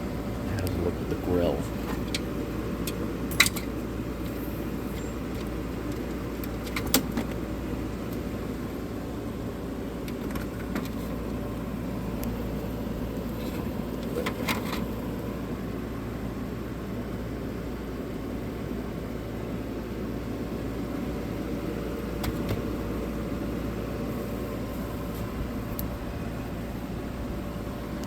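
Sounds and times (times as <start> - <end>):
window air conditioner running: 0.0 - 28.0.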